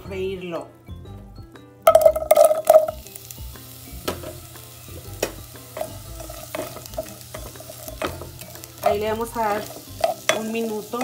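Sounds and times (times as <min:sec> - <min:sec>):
onion sizzling in butter: 0:01.9 - 0:11.0
spatula tapping pan: 0:04.0 - 0:11.0.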